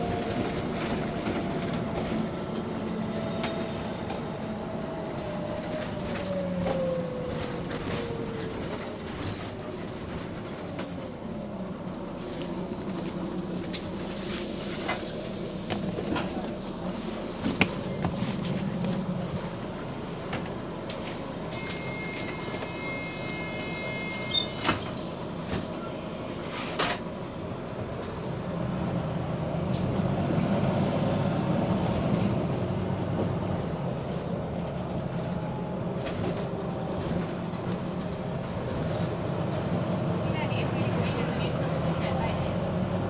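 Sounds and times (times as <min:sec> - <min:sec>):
bus diesel engine: 0:00.0 - 0:43.0
bus body knocks and rattles: 0:13.9 - 0:19.6.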